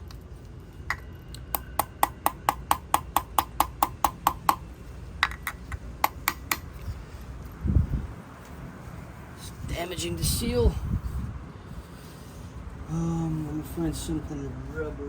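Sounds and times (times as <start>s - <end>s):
light hammer taps: 1.6s - 6.8s.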